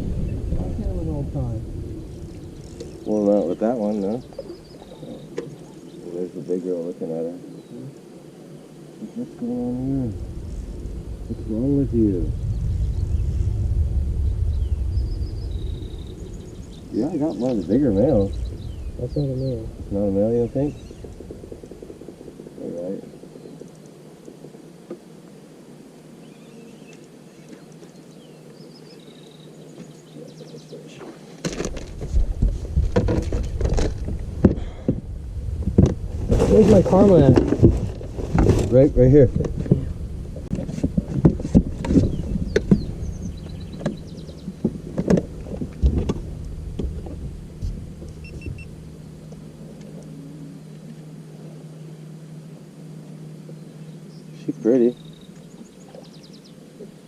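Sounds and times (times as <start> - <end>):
loud low rumble: 0.0 - 5.1, 9.4 - 23.0, 32.0 - 51.9
low motor hum: 0.0 - 57.0
faint bird chirps: 1.8 - 10.6, 14.2 - 21.2, 26.2 - 31.4, 42.0 - 44.7, 52.9 - 56.7.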